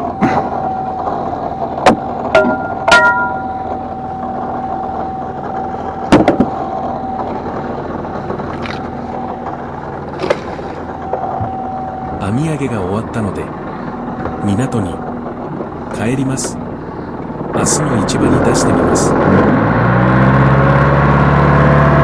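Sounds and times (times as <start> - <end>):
boat engine whining: 0.0 - 22.0
knocks and clanks on board: 6.1 - 6.5.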